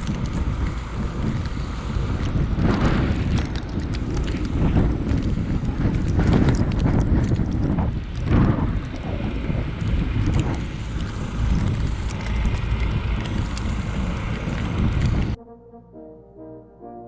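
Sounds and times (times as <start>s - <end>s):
tractor engine rumble: 0.0s - 15.4s
wind buffeting microphone: 0.0s - 15.4s.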